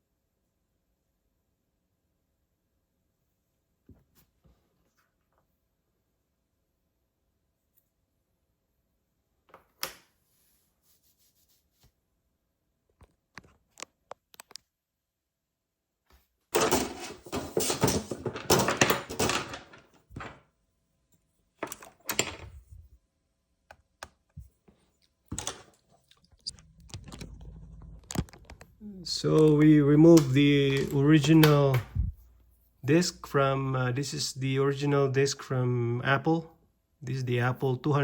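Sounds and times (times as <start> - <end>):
rustling and scraping: 16.6 - 20.4, 24.3 - 29.6.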